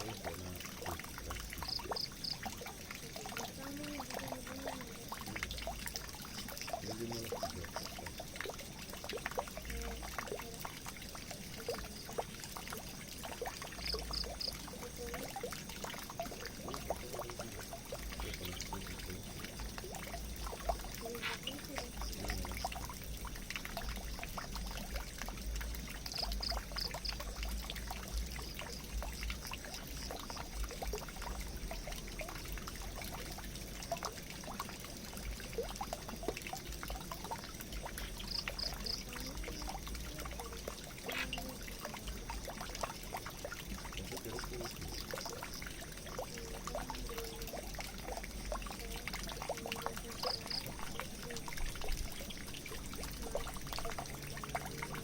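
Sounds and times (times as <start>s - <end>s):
water drips and splashes: 0.0s - 55.0s
water pouring into a drain: 0.0s - 55.0s.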